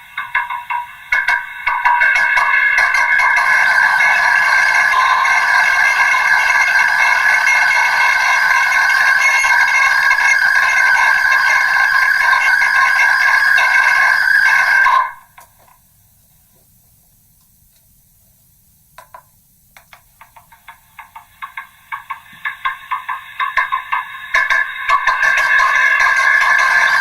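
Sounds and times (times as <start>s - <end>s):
drone of ringing tones: 0.0s - 15.4s, 21.0s - 27.0s
low hiss: 15.0s - 27.0s.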